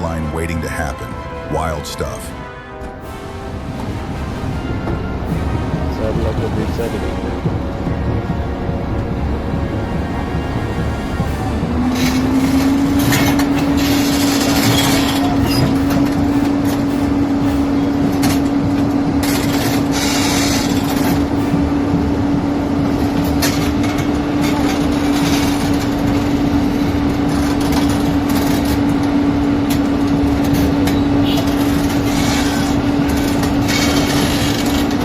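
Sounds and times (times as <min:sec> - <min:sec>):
heavy machinery engine running: 0:00.0 - 0:35.0.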